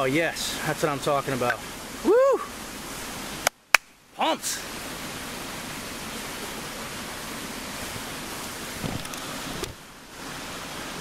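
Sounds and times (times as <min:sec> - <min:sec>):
rain falling: 0:00.0 - 0:11.0
low thump: 0:08.8 - 0:09.1.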